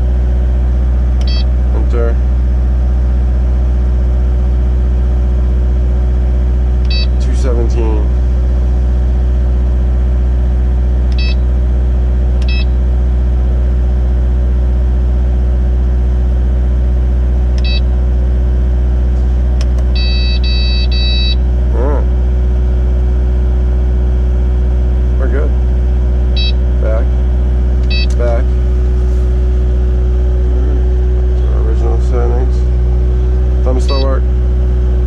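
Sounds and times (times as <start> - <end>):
excavator diesel engine humming: 0.0 - 15.4, 17.2 - 35.0
short electronic beeps: 1.2 - 1.5, 6.9 - 7.2, 11.2 - 11.4, 12.4 - 12.8, 17.6 - 17.9, 20.0 - 21.4, 26.4 - 26.6, 27.8 - 28.3, 33.8 - 34.2.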